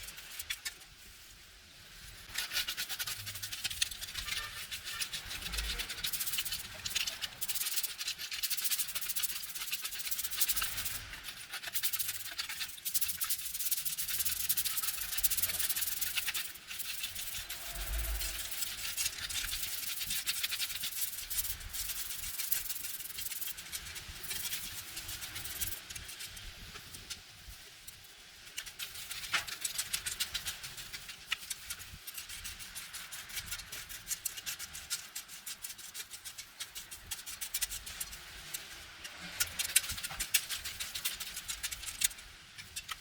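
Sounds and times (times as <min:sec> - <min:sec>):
scrubbing a hard surface: 0:02.3 - 0:27.2, 0:28.4 - 0:42.2.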